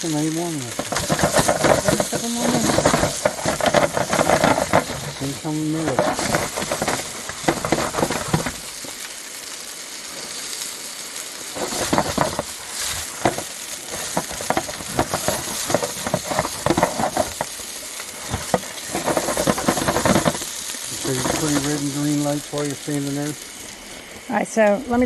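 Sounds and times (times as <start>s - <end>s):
crackling pops: 0.0s - 25.0s
food sizzling on a stove: 0.0s - 25.0s.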